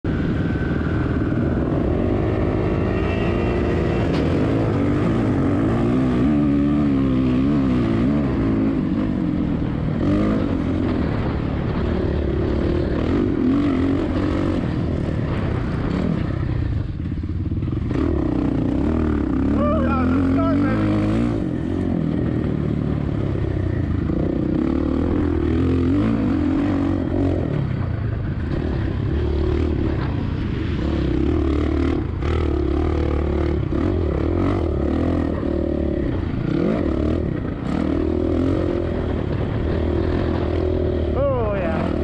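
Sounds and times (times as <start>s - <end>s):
wind rumble on microphone: 0.0s - 19.4s
motocross bike engine revving: 0.1s - 42.0s.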